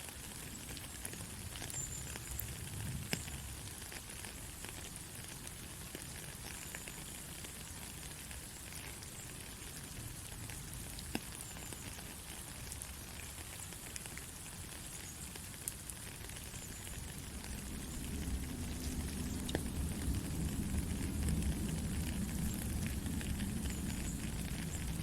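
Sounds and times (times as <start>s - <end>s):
soft rain falling: 0.0s - 25.0s
raindrop hits: 15.9s - 25.0s.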